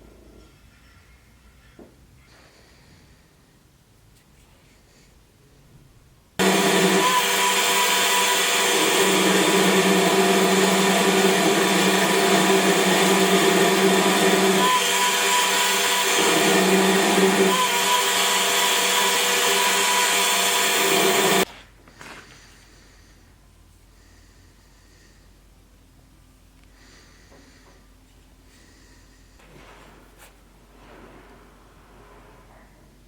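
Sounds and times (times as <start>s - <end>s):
electric power tool motor: 6.4s - 21.5s.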